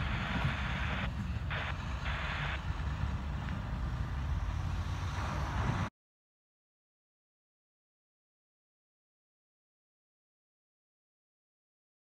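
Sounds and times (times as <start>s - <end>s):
freight train rumbling past: 0.0s - 5.9s
wind noise on microphone: 0.0s - 5.9s.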